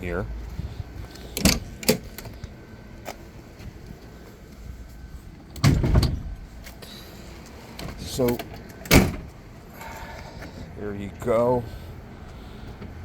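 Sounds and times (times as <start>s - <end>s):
car hood clunk and rattle: 5.5s - 6.5s, 7.8s - 9.4s.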